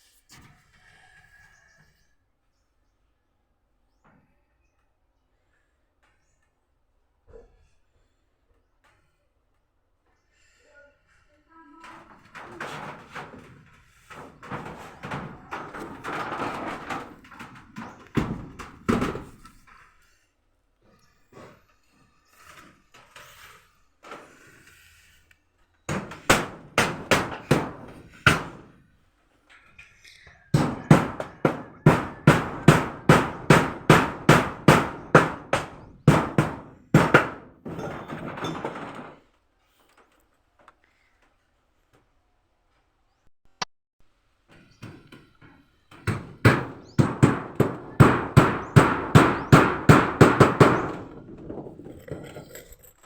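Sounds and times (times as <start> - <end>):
knocks and handling noise: 11.8 - 20.0, 25.9 - 41.3
hammer blows: 25.9 - 28.7, 30.5 - 38.9, 45.9 - 51.9.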